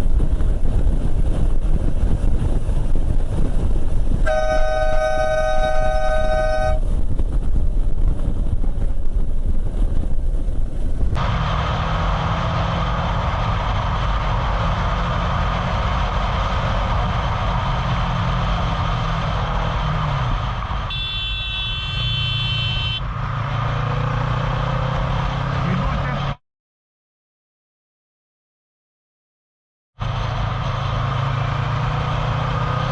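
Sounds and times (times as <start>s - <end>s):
road and wind noise: 0.0s - 26.4s, 30.0s - 32.9s
vehicle horn honking: 4.3s - 6.8s, 20.9s - 23.0s.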